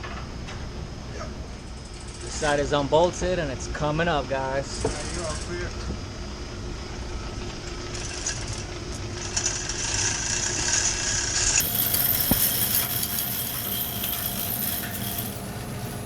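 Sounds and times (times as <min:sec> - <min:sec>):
machinery room noise: 0:00.0 - 0:16.0
chain hoist rattling: 0:09.2 - 0:16.0.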